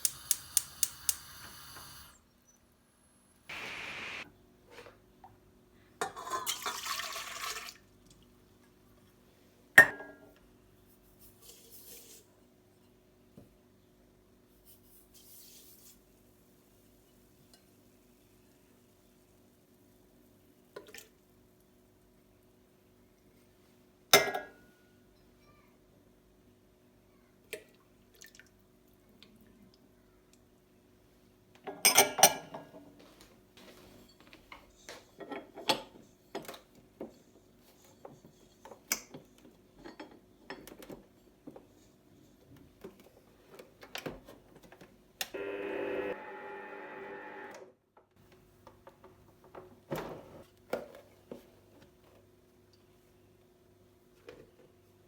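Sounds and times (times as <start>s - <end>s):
rushing noise: 3.5s - 4.2s
dishes and utensils clinking: 6.0s - 6.7s
faint steady hum: 45.4s - 47.6s.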